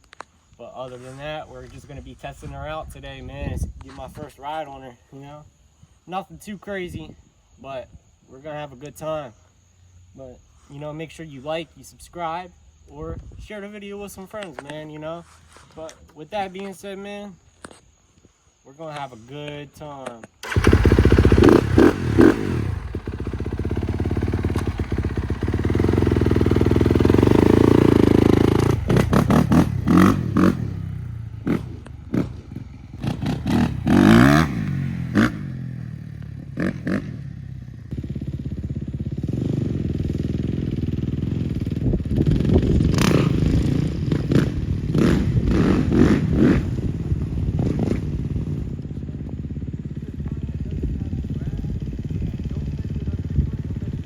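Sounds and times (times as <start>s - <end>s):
dirt bike engine revving: 20.4s - 48.7s.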